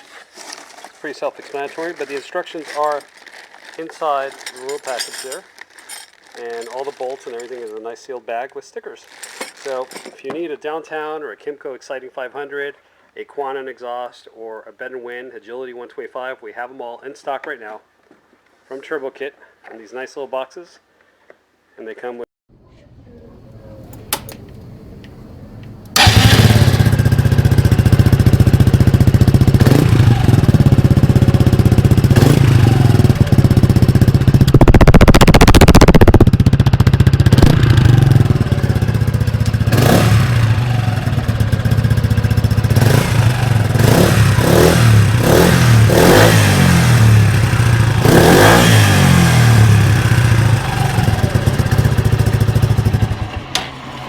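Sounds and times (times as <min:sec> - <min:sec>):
scooter engine revving: 0:25.9 - 0:54.0.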